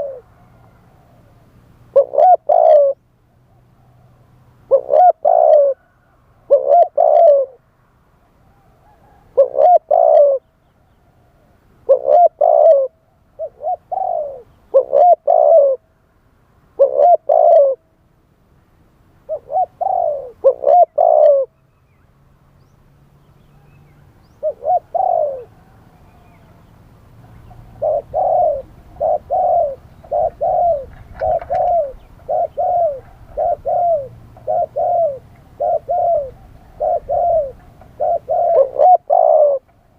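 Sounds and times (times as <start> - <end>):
dove cooing: 0.0 - 3.0, 4.7 - 7.6, 8.5 - 10.5, 11.8 - 15.9, 16.8 - 17.9, 19.2 - 21.6, 23.6 - 26.6, 27.2 - 39.9.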